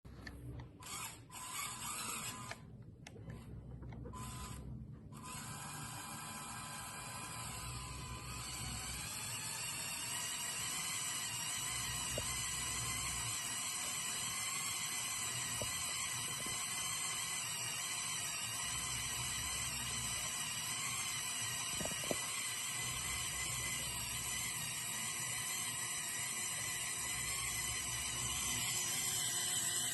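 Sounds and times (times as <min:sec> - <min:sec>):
toy motors and gears whining: 0:00.0 - 0:29.9
low hum rising and falling: 0:00.1 - 0:09.8.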